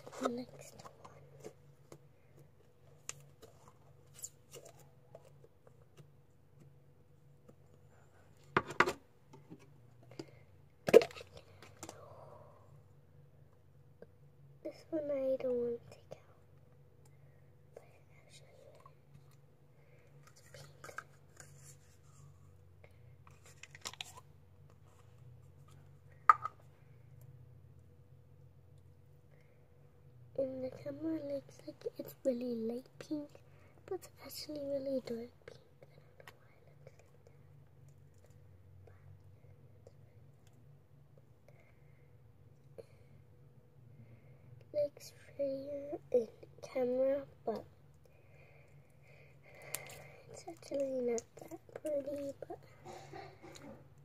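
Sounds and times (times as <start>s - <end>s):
low steady hum: 0.0s - 54.0s
clicks and rustles of containers: 23.3s - 24.8s.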